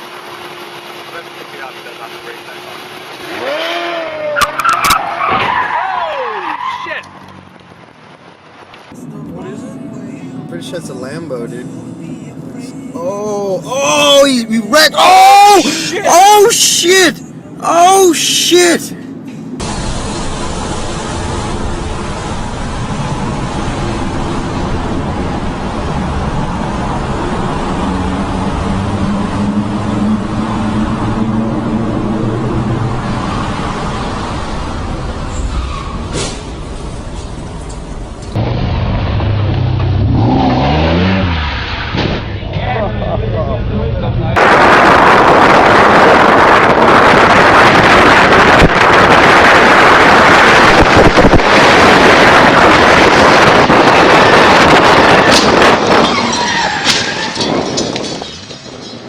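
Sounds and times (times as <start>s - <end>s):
fast-moving car rushing: 0.0s - 9.1s, 20.6s - 37.0s, 38.3s - 42.5s, 44.2s - 58.9s
road and wind noise: 0.0s - 59.0s
wind buffeting microphone: 44.4s - 59.0s.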